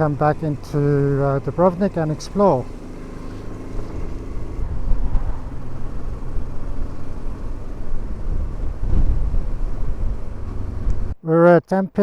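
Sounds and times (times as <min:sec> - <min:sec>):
motorcycle engine running: 0:00.0 - 0:11.2
wind on microphone: 0:04.6 - 0:05.8, 0:07.6 - 0:11.2.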